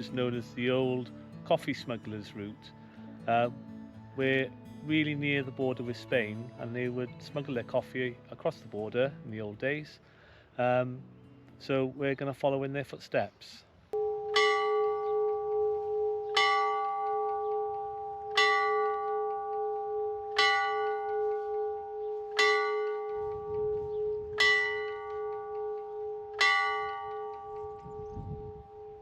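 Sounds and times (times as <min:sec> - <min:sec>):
church bell tolling: 0:14.0 - 0:29.0.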